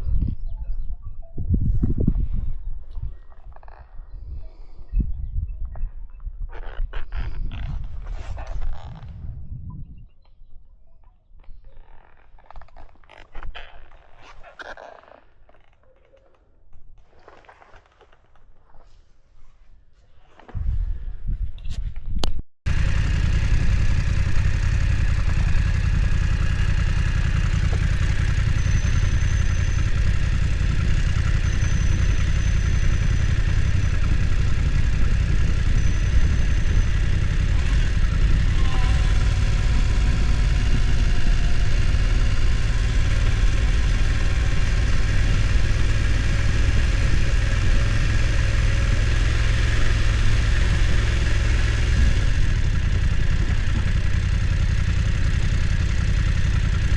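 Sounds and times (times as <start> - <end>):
motorcycle engine running: 22.7 - 56.9.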